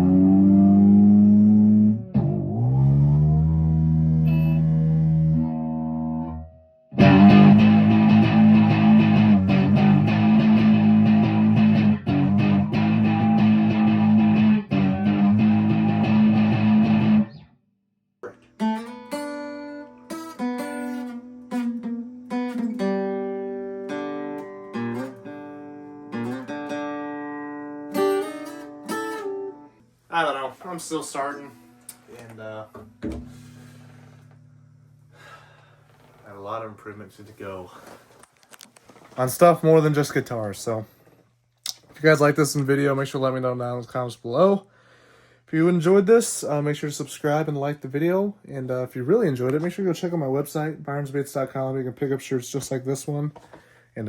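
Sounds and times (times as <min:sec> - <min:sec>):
picked guitar notes: 0:00.0 - 0:17.4, 0:18.2 - 0:29.8
guitar chord ringing: 0:04.3 - 0:17.4, 0:18.6 - 0:29.8, 0:33.2 - 0:35.8
strummed guitar chords: 0:04.6 - 0:17.4, 0:18.3 - 0:29.8.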